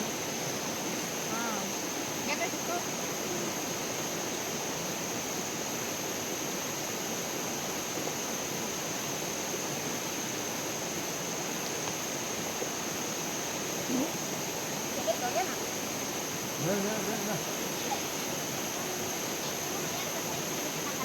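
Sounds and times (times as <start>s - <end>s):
flowing water rushing: 0.0s - 21.0s
constant high-pitched tone: 14.9s - 21.0s.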